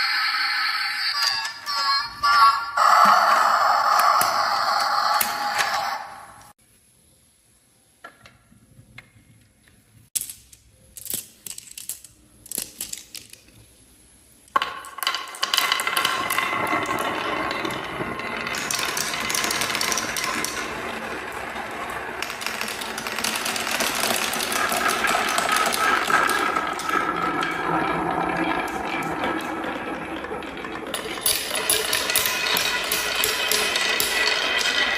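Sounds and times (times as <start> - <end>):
marbles clicking: 10.2 - 13.6, 14.5 - 34.9
marbles rolling down wooden run: 14.5 - 34.9.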